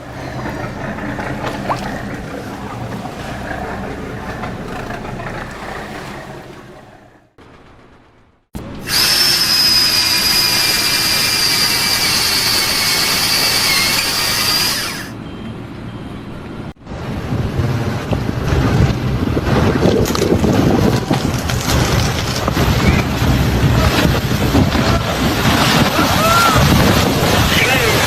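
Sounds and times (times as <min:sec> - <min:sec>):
low mechanical rumble: 0:00.0 - 0:15.1
power tool whining: 0:08.8 - 0:15.1.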